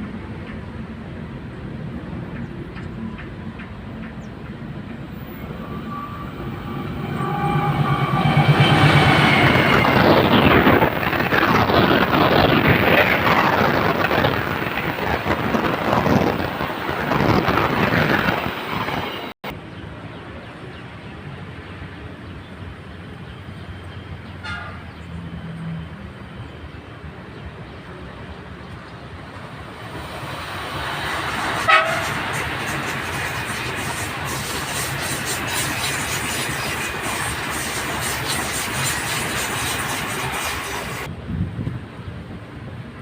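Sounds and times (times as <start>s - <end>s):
train wheels rushing on rails: 0.0s - 19.4s, 26.8s - 43.0s
train rumble: 0.0s - 43.0s
train horn toot: 5.4s - 10.5s, 24.4s - 24.9s, 31.6s - 32.3s.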